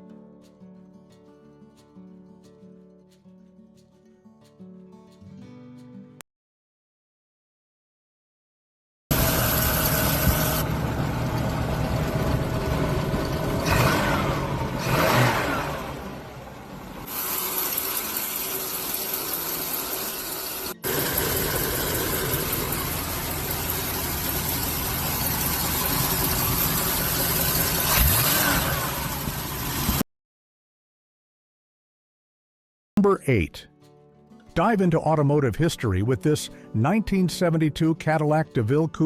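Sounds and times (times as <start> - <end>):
car engine idling: 9.1 - 30.0.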